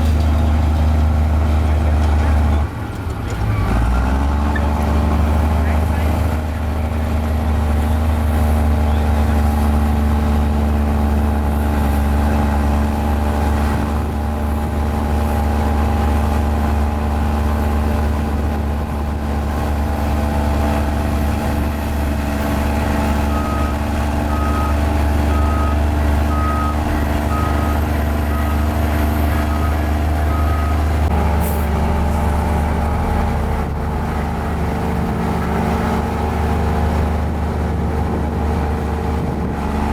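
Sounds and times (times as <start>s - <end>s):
bulldozer diesel engine running: 0.0s - 39.9s
reversing alarm beeps: 23.3s - 28.7s, 29.4s - 30.9s.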